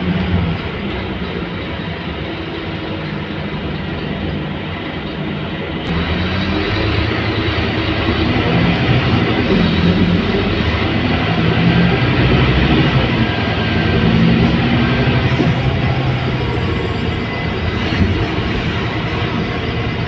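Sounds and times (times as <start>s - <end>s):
bus diesel engine drone: 0.0s - 20.0s
road and body noise: 5.9s - 20.0s.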